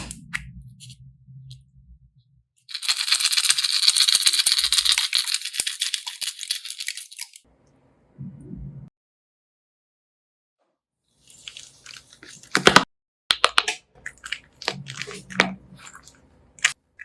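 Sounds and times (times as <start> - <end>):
rattle of small hard pieces: 2.7 - 7.4
short low hum: 8.0 - 8.9.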